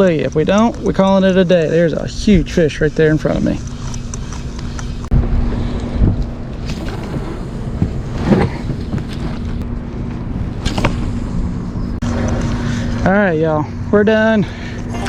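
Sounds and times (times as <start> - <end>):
steady low hum: 0.0 - 15.0
wind buffeting microphone: 4.5 - 12.0.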